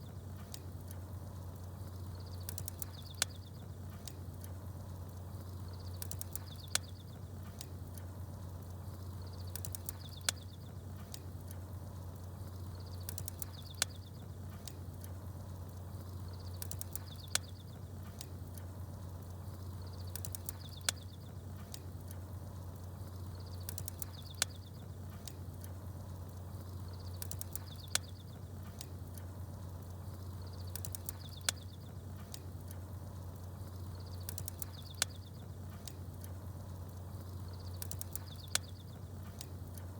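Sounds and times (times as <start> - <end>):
campfire crackling: 0.0 - 39.9
small birds chirping: 0.0 - 39.9
high chirp with sharp crack: 1.8 - 4.5, 5.3 - 8.0, 8.9 - 11.2, 12.4 - 15.0, 15.7 - 18.6, 19.5 - 21.8, 23.0 - 25.6, 26.3 - 29.2, 29.8 - 32.4, 33.5 - 39.9.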